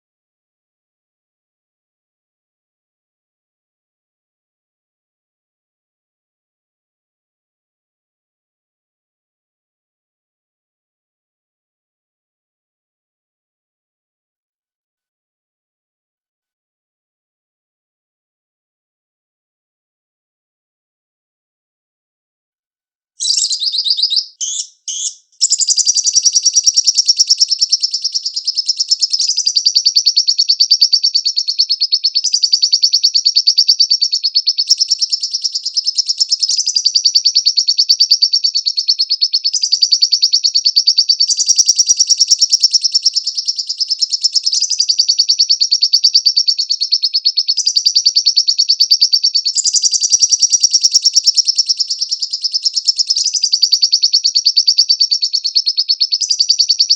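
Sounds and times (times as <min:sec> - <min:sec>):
bird chattering trill: 0:23.2 - 0:56.9.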